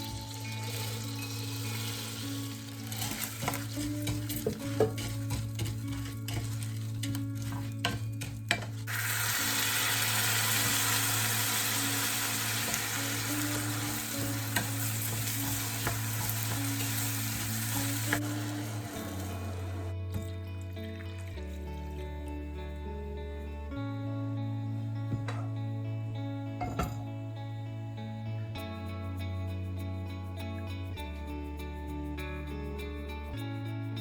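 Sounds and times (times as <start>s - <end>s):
food sizzling in a pan: 0.0s - 20.0s
utensil stirring clicks: 0.1s - 9.0s.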